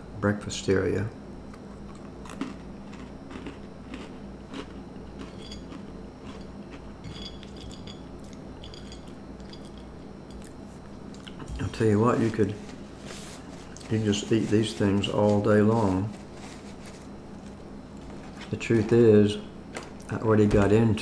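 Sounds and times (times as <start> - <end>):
crunching crackers: 1.5 - 7.0.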